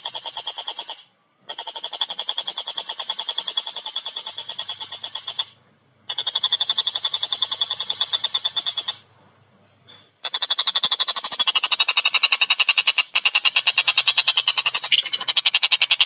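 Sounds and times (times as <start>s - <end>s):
kingfisher chattering call: 10.2s - 16.0s.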